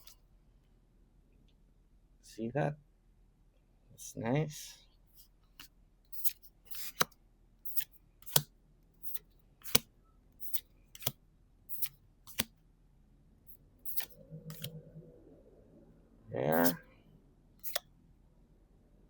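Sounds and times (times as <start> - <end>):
trading cards flipping: 5.6 - 7.1, 7.7 - 12.5, 13.9 - 14.8, 16.5 - 16.8.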